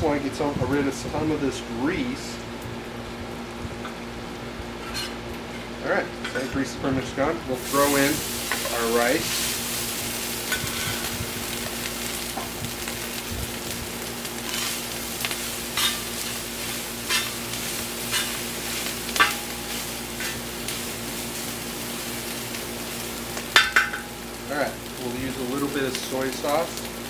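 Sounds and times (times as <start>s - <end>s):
metal spatula scraping pan: 4.8s - 5.2s, 15.8s - 16.4s, 17.0s - 18.4s
rice sizzling in pan: 7.5s - 27.0s.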